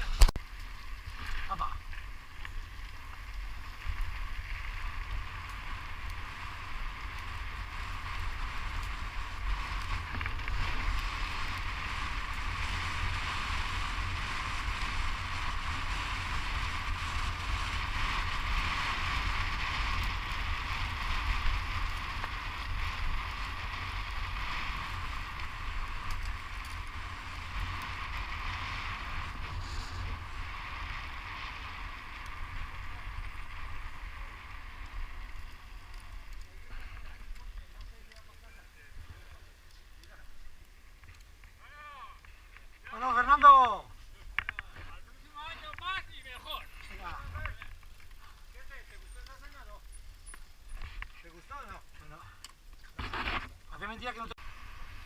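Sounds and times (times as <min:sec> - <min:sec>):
tyres hissing on road: 0:28.2 - 0:35.3.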